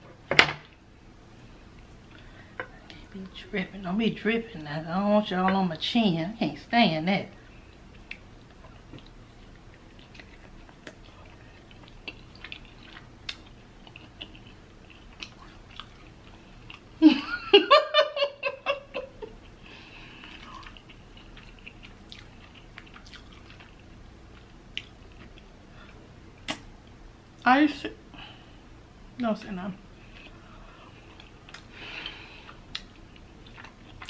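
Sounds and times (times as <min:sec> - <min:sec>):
wet chewing and mouth clicks: 0:07.7 - 0:16.9, 0:19.4 - 0:26.7, 0:31.0 - 0:34.0
laughter through a full mouth: 0:17.0 - 0:19.4.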